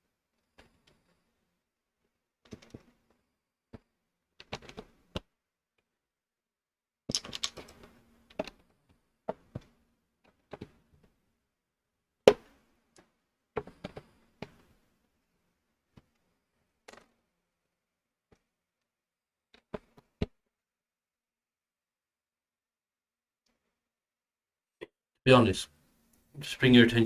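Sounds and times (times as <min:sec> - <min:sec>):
plastic bricks clicking and rattling: 0:07.1 - 0:07.8.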